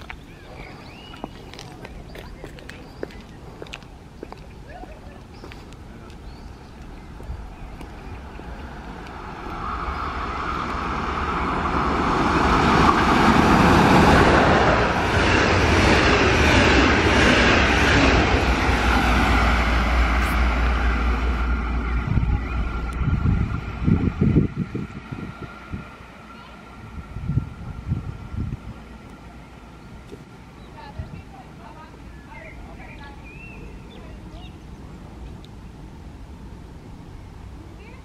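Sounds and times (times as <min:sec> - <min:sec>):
train wheels rushing on rails: 0:05.2 - 0:33.6
electric locomotive whine: 0:06.1 - 0:37.8.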